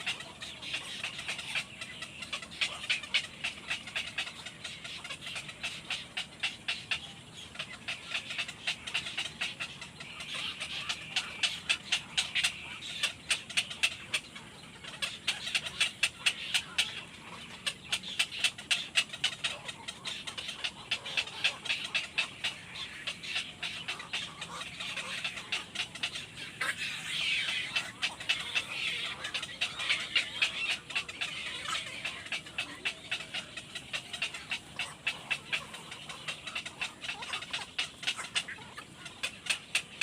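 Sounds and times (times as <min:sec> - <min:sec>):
baby birds cheeping: 0:00.0 - 0:40.0.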